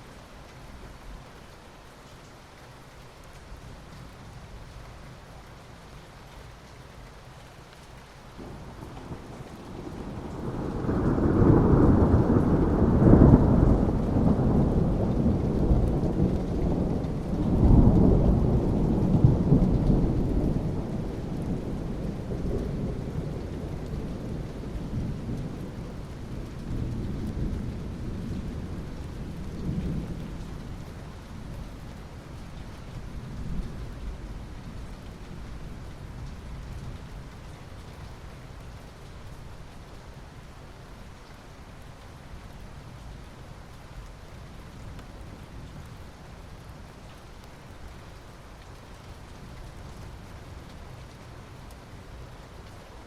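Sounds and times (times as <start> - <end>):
steady rain: 0.0 - 53.0
thunder rumbling: 8.4 - 31.5.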